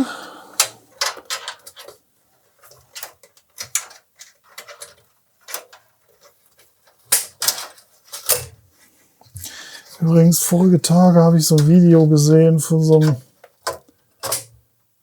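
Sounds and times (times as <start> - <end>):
plastic clicks and knocks: 13.4 - 14.6.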